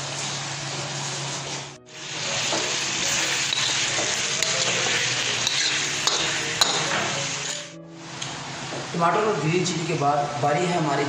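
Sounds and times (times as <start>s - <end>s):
food sizzling in a pan: 0.0s - 10.0s
spatula scraping a pan: 2.6s - 7.6s.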